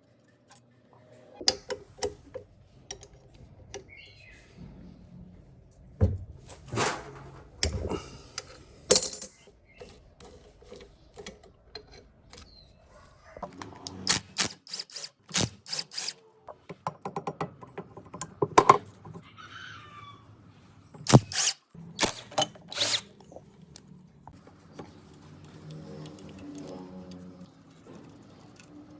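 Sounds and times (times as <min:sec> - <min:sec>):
metal tools clinking and knocking: 0:08.9 - 0:09.5.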